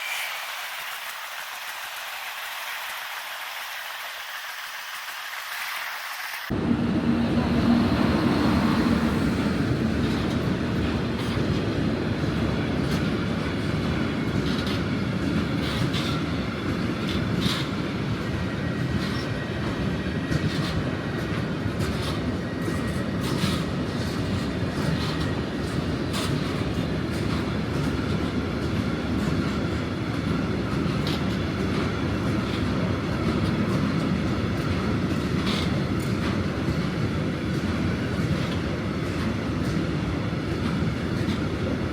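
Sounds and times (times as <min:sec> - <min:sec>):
freight train rumbling past: 0:00.0 - 0:41.9
wheel clicks over rail joints: 0:10.0 - 0:41.7.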